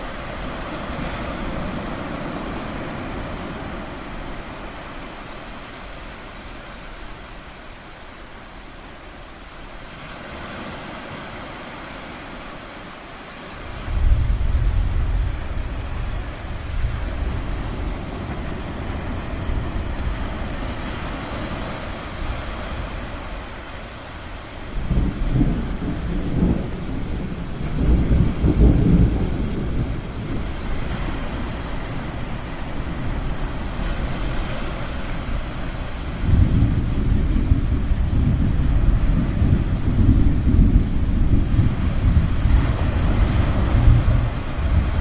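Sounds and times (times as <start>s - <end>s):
ocean waves: 0.0s - 45.0s
thunder rolling: 13.6s - 34.4s, 35.0s - 45.0s.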